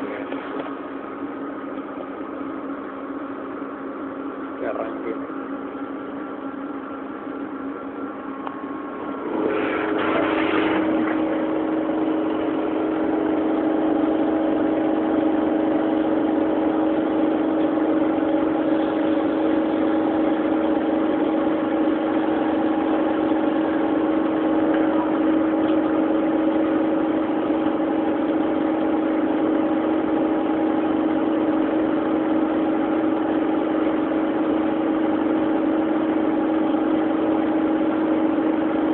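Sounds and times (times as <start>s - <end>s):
lathe machine hum: 0.0s - 38.9s.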